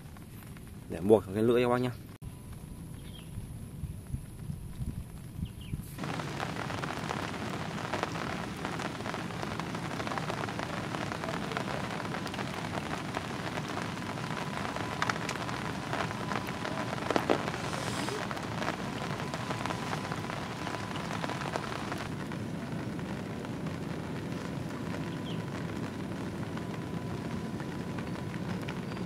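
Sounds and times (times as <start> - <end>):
heavy rain falling: 6.0 - 29.0.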